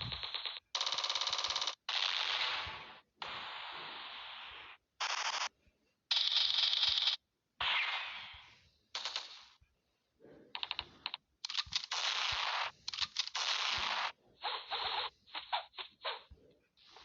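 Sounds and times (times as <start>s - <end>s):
rapid weapon clicks: 10.6s - 14.1s.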